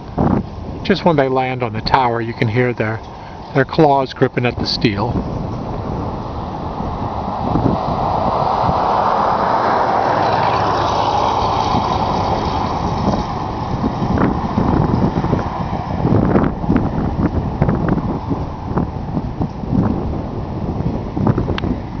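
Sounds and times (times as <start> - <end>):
wind rumbling on microphone: 0.0 - 22.0
road vehicle passing by: 5.0 - 22.0.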